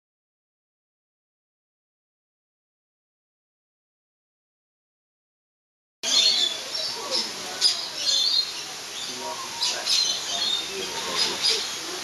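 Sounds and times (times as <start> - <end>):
birds chirping and calling: 6.0 - 12.0.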